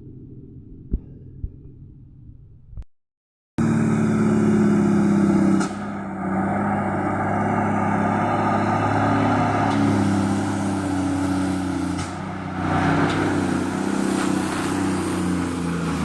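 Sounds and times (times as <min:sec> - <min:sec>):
truck diesel engine running: 0:03.6 - 0:16.0.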